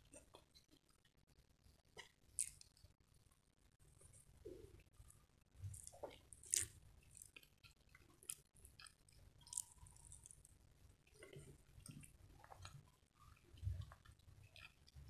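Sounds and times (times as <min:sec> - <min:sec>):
wet chewing: 0:02.0 - 0:02.8, 0:05.6 - 0:15.0
mouth clicks and smacks: 0:05.7 - 0:10.4.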